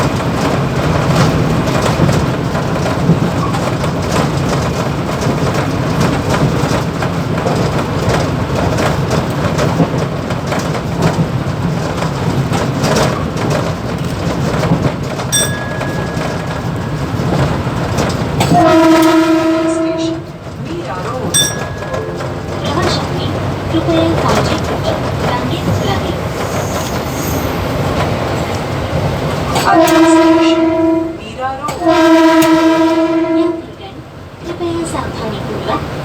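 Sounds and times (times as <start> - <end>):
rail clatter and rattling: 0.0 - 30.4
train rumble and hum: 0.0 - 36.0
train horn long blast: 18.4 - 20.3, 29.6 - 31.2, 31.8 - 33.8.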